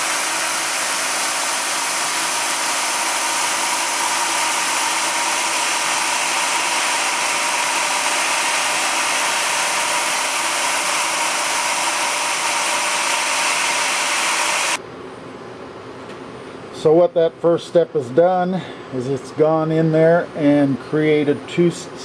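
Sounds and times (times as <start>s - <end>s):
machine hissing with steady tones: 0.0s - 14.8s.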